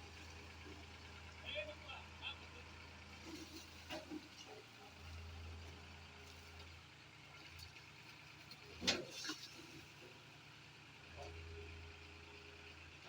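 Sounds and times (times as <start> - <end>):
diesel tractor engine humming: 0.0 - 8.3.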